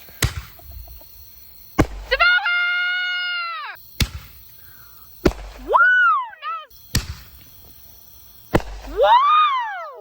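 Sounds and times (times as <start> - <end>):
firework bangs: 0.0 - 2.5, 3.8 - 4.6, 5.2 - 5.8, 6.8 - 7.8, 8.4 - 9.4.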